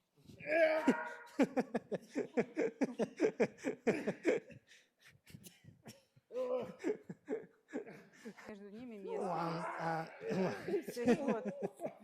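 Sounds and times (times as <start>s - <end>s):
person laughing: 0.8s - 4.5s.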